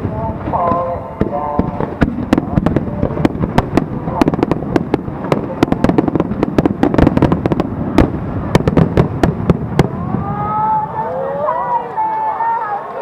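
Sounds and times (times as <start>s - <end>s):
voices: 0.0s - 4.6s, 9.8s - 13.0s
fireworks bangs and crackles: 0.0s - 12.6s.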